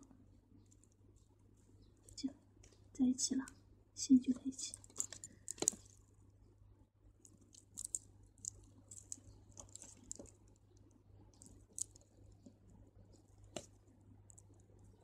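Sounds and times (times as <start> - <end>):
crystal beads clicking together: 4.6 - 6.0, 7.3 - 10.4, 11.4 - 12.2.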